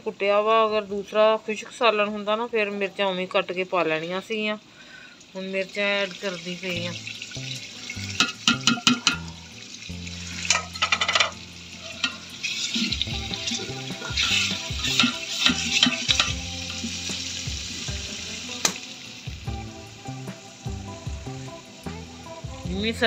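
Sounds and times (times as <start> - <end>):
masala sizzling in oil: 0.1 - 23.0
ladle stirring and clicking on pot: 8.0 - 9.4, 10.3 - 16.8.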